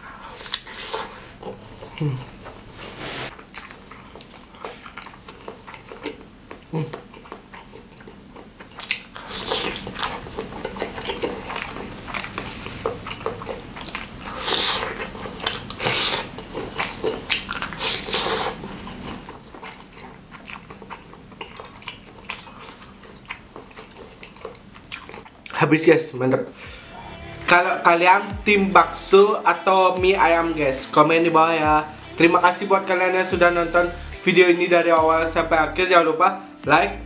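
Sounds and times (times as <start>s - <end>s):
wet biting and chewing: 0.1s - 2.7s, 3.3s - 25.6s.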